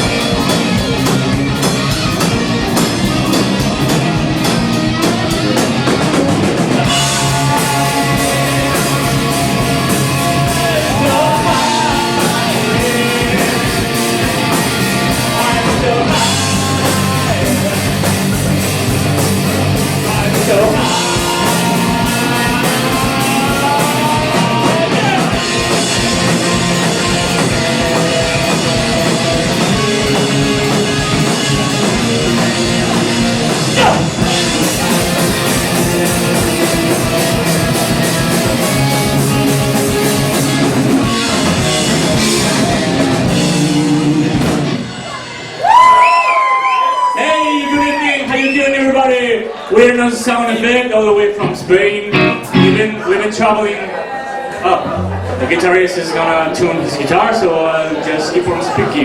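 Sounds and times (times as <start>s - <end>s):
distorted electric guitar: 0.0s - 46.1s, 51.4s - 53.1s
drum kit: 0.0s - 47.2s, 51.4s - 53.0s
person singing: 6.7s - 18.6s, 19.8s - 30.8s, 51.1s - 53.1s.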